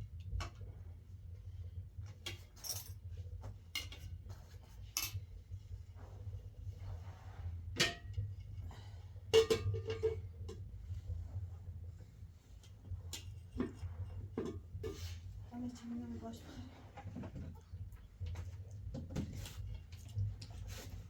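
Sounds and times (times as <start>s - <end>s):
low steady hum: 0.0s - 21.0s
dishes and utensils clinking: 4.9s - 5.2s, 9.4s - 10.2s.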